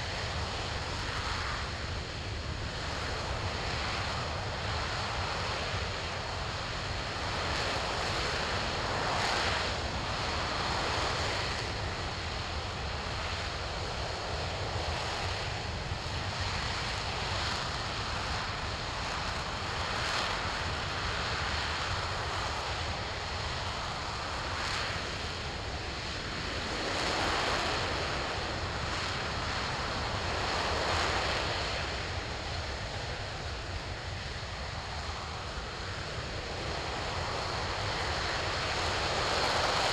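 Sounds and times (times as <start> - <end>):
rocket engine roar: 0.0 - 39.9.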